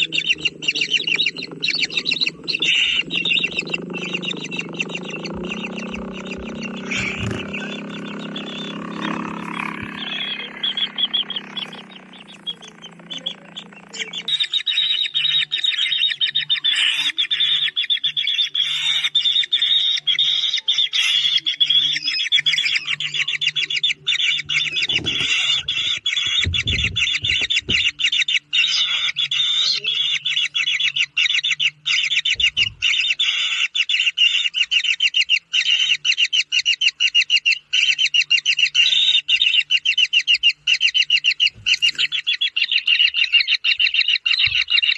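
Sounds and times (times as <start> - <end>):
bird chick calling: 0.0 - 44.9
low bumps: 2.4 - 14.2, 24.5 - 27.9.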